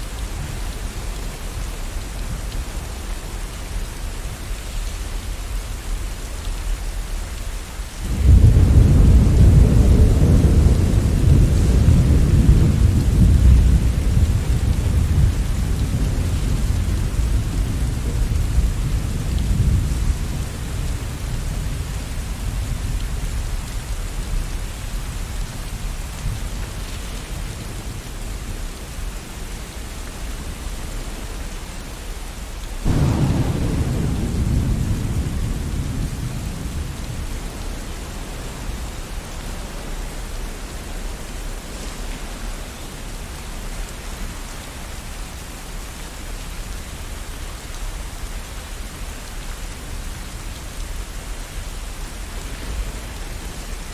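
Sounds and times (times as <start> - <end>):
steady rain: 0.0 - 53.9
thunder rumbling: 8.0 - 23.6, 32.8 - 40.1.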